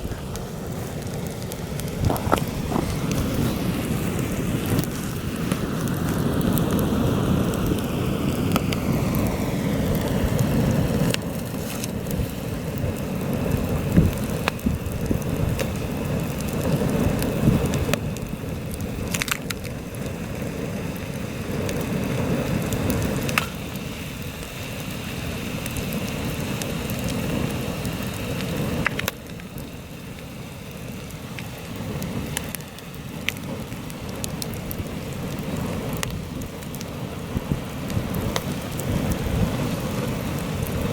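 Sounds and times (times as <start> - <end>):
wind gusts on microphone: 0.0 - 19.1
campfire crackling: 0.0 - 40.9.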